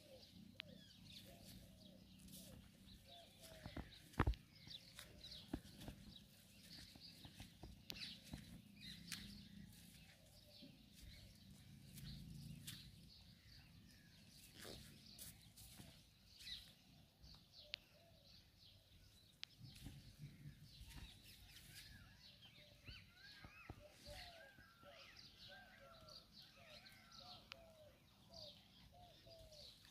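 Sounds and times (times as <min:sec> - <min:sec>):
faint bird chirps and calls: 0:00.0 - 0:29.9.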